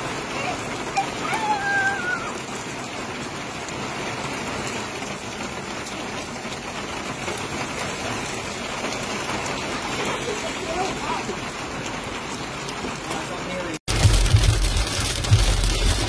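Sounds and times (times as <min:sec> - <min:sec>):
heavy rain on pavement: 0:00.0 - 0:16.0.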